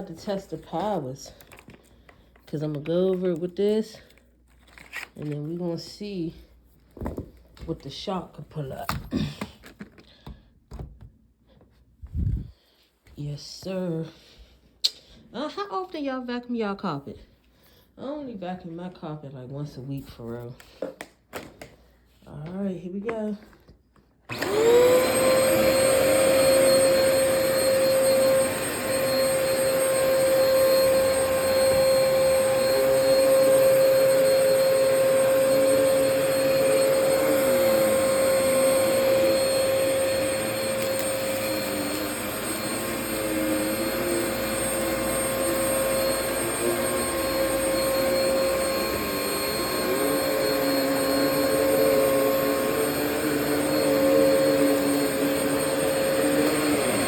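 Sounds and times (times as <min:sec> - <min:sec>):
vacuum cleaner on carpet: 0:24.3 - 0:57.0.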